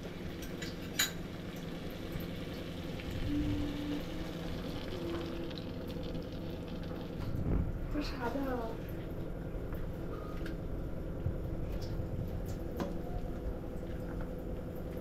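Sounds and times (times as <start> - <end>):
masala sizzling in pan: 0.0 - 7.6.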